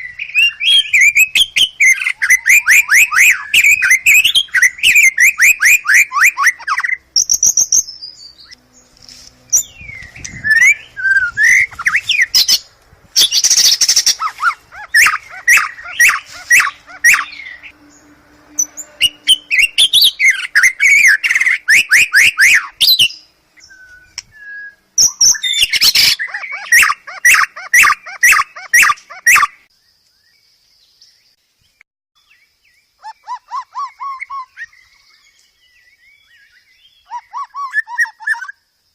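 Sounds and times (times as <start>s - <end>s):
bird singing sweeping whistles: 0.0s - 8.6s, 9.5s - 17.7s, 18.5s - 29.6s
sharp clicking bird notes: 23.8s - 24.4s.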